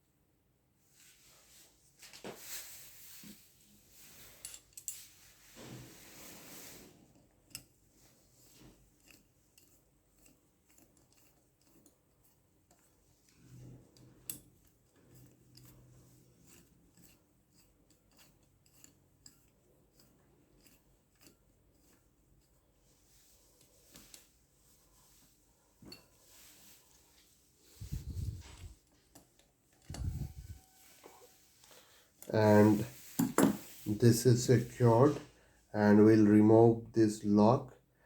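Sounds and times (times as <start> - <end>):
hand tools clicking and tapping metal: 4.4 - 5.0, 7.4 - 7.8, 8.5 - 22.6, 32.2 - 33.6.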